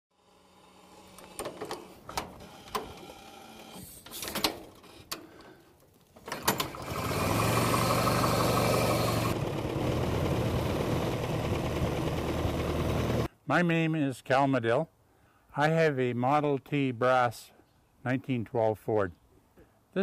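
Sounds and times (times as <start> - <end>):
car engine running: 6.7 - 13.3.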